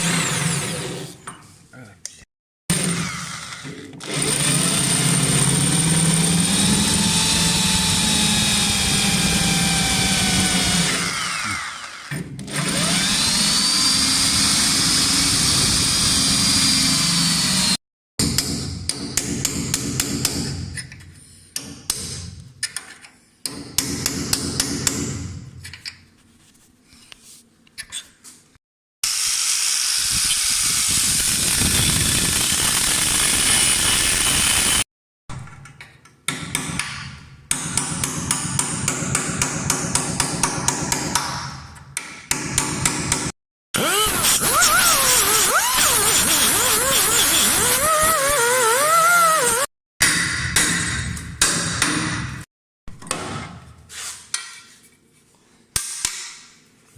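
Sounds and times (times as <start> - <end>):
power tool whining: 2.7 - 17.8, 29.0 - 34.8, 43.8 - 49.7.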